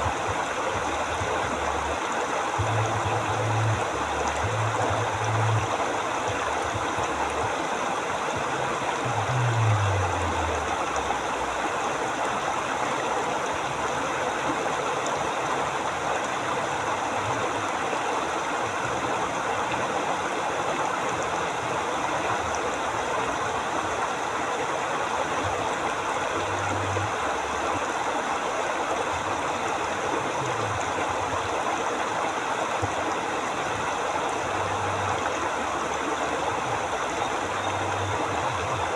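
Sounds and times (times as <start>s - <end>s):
river water rushing: 0.0s - 38.9s
low rumbles: 8.5s - 11.6s.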